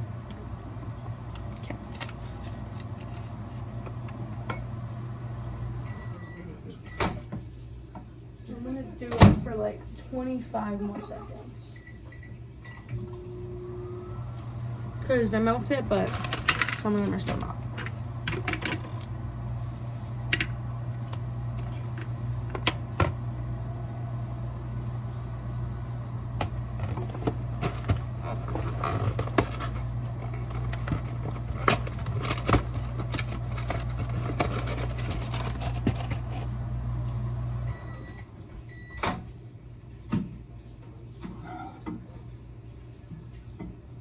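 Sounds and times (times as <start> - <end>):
microwave oven humming: 0.0 - 44.0
microwave clicks: 20.2 - 23.4, 26.1 - 28.4.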